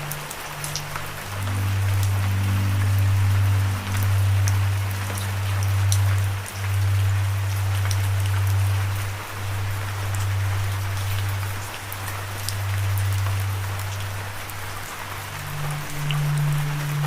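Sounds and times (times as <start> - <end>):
steady rain: 0.0 - 17.0
low held music note: 1.3 - 6.2.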